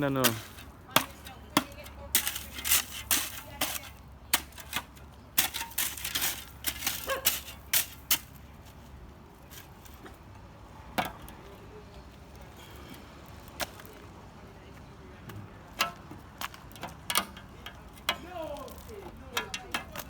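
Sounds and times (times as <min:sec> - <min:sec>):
shovel clinking and scraping rubble: 0:00.2 - 0:08.3.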